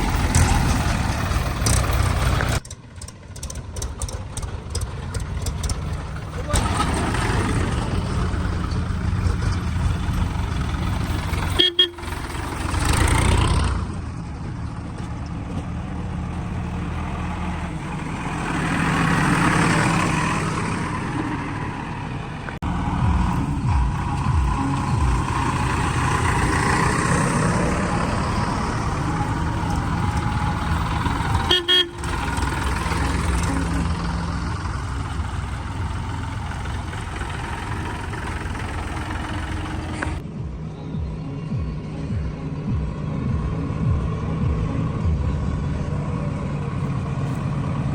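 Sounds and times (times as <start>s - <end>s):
heavy diesel engines running: 0.0s - 47.9s
vehicle horn: 11.3s - 12.7s, 29.4s - 34.4s.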